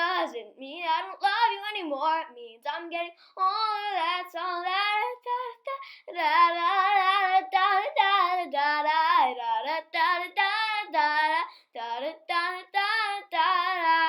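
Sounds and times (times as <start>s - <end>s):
child singing wordless syllables: 0.0s - 14.0s.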